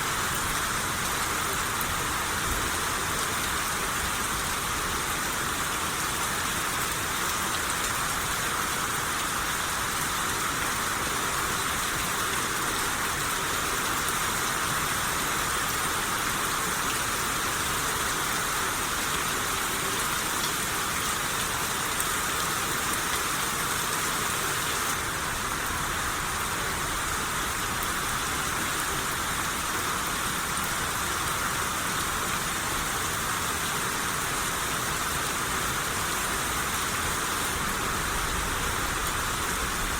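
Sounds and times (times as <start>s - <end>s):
rain on surfaces: 0.0s - 39.9s.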